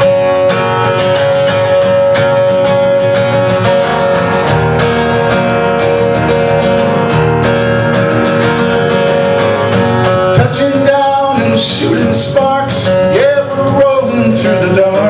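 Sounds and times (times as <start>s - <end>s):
guitar strumming: 0.0s - 15.0s.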